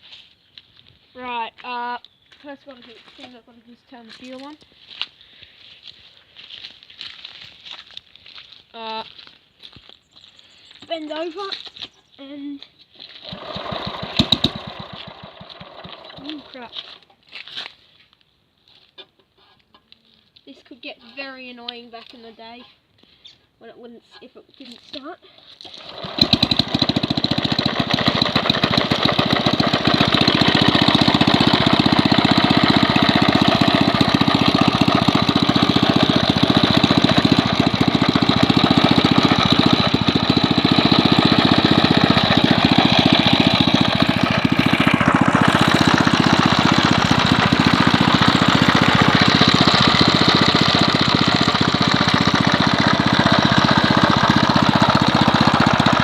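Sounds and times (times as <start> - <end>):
two-stroke engine running: 13.2 - 17.0, 25.7 - 56.0.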